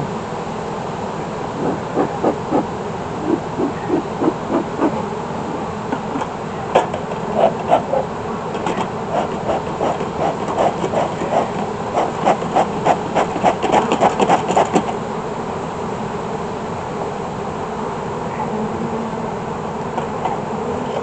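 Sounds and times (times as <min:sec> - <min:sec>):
honeybees humming: 0:00.0 - 0:21.0
smoker bellows puffing: 0:01.5 - 0:14.9.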